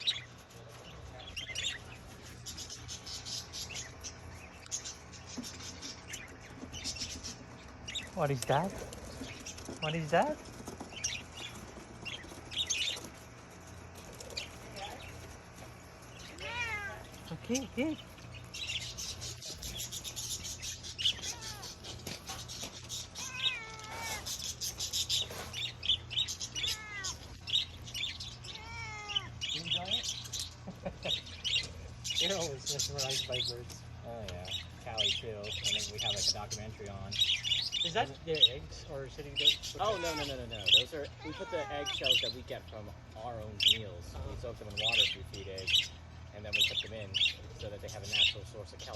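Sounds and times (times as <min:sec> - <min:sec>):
low steady hum: 0:00.0 - 0:48.9
small birds chirping: 0:00.0 - 0:48.9
cat meowing: 0:16.3 - 0:17.1, 0:21.0 - 0:21.9, 0:23.0 - 0:24.4, 0:26.5 - 0:27.6, 0:28.5 - 0:29.6, 0:39.8 - 0:42.3.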